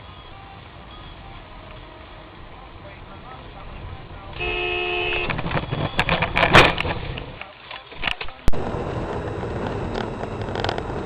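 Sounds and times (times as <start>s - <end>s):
road and engine hum inside car: 0.0s - 11.0s
car collision impacts: 4.4s - 7.2s.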